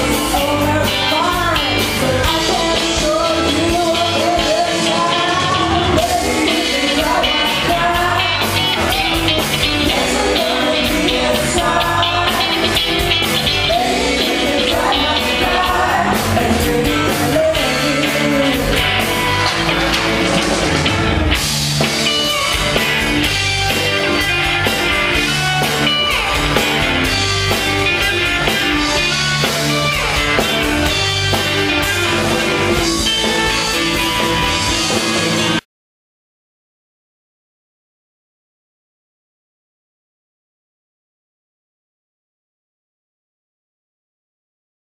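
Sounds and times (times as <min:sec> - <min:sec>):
person singing: 0:00.0 - 0:19.9
bass guitar: 0:00.0 - 0:35.6
electric guitar: 0:00.0 - 0:35.6.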